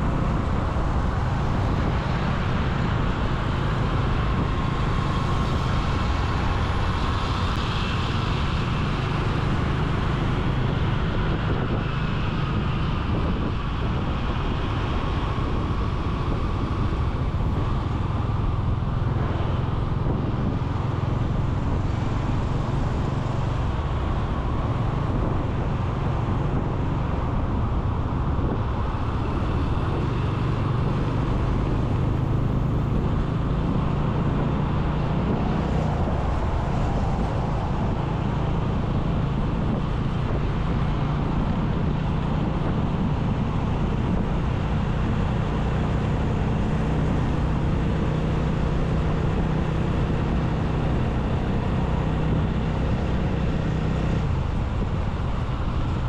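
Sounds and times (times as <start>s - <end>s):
motorcycle engine drone: 0.0s - 56.0s
surrounding traffic: 0.0s - 56.0s
wind and tyre rush: 0.0s - 56.0s.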